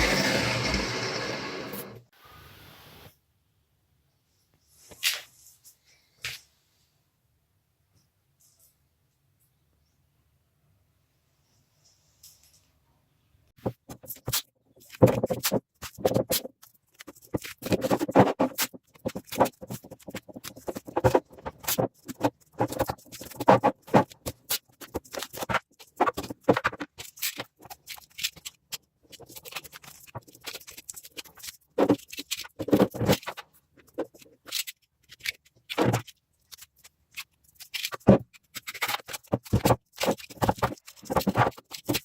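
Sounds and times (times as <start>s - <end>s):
small metal parts handled: 26.2s - 42.0s.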